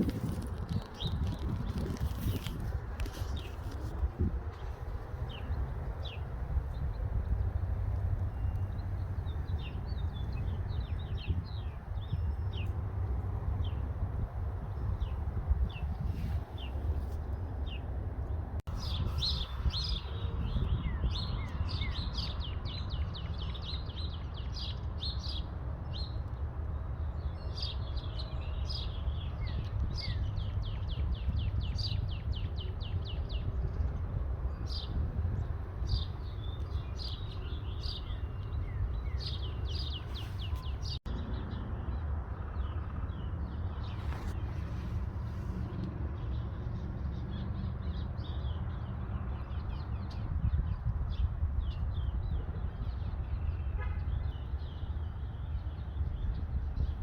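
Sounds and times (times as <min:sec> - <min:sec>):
small birds chirping: 0:14.7 - 0:26.2, 0:27.1 - 0:57.0.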